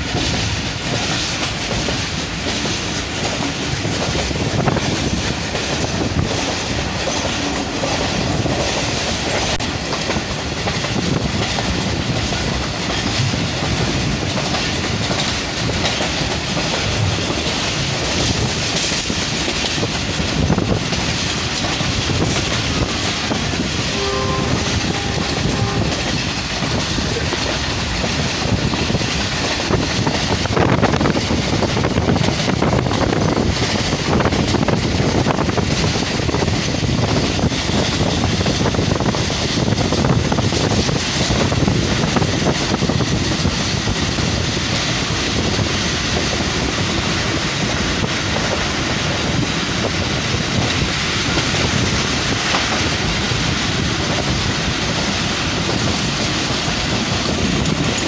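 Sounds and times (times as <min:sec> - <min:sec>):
train wheels clickety-clack: 0:00.0 - 0:58.0
train horn: 0:23.8 - 0:26.4.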